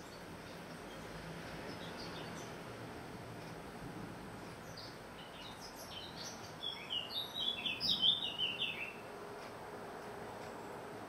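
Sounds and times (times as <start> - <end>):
small songbirds chirping: 0.0 - 2.8, 4.3 - 9.1.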